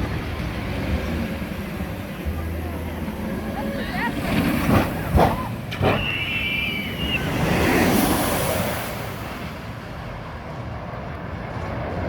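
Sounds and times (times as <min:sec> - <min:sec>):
outdoor rushing noise: 0:00.0 - 0:12.0
high whistle-like tone: 0:05.8 - 0:07.5.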